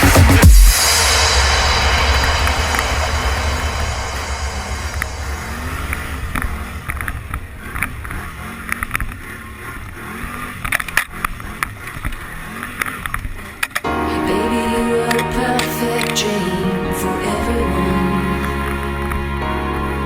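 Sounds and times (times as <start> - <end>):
music: 0.0 - 5.8, 13.9 - 20.0
atv engine running: 7.3 - 13.8.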